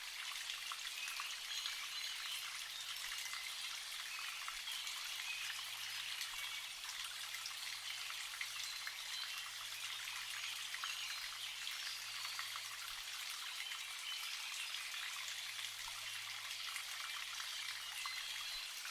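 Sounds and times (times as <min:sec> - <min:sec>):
water trickling and dripping: 0:00.0 - 0:18.9.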